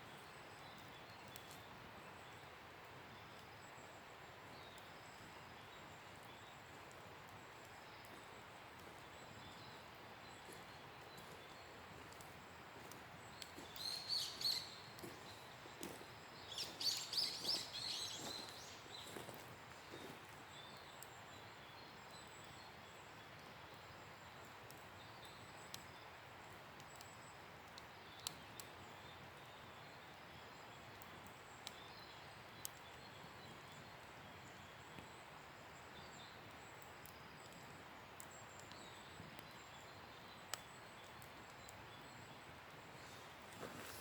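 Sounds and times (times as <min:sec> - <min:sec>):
bonfire hissing and crackling: 0:00.1 - 0:44.0.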